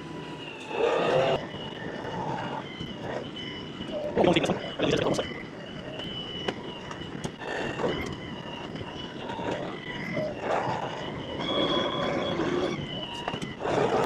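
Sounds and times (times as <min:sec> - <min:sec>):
tractor engine whining: 0:00.0 - 0:14.0.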